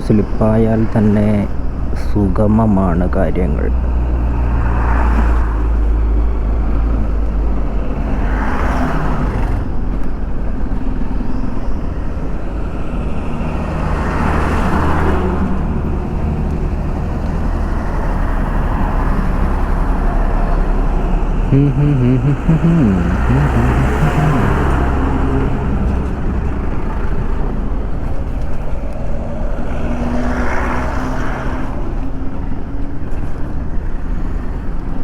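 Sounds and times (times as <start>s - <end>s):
wind and road noise: 0.0s - 35.0s.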